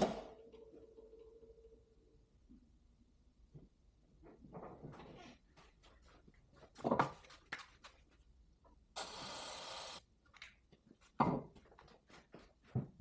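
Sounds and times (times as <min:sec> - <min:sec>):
aerosol can spraying: 0:09.0 - 0:10.0.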